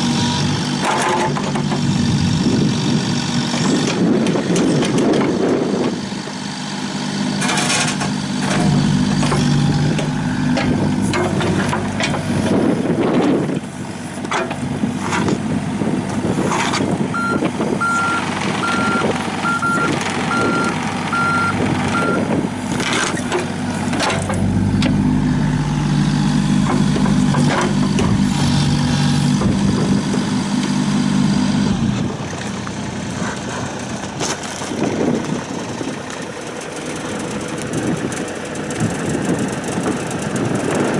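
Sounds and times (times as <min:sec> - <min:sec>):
excavator diesel engine working: 0:00.0 - 0:40.9
clanks and knocks: 0:07.4 - 0:12.3, 0:22.8 - 0:25.0, 0:26.6 - 0:28.2.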